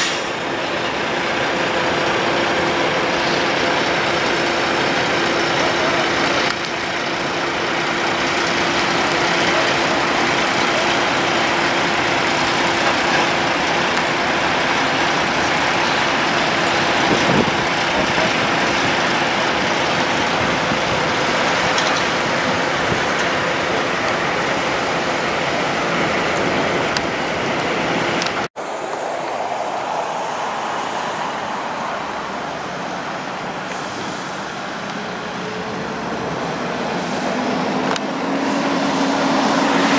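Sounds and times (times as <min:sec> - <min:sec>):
heavy trucks road noise: 0:00.0 - 0:39.9.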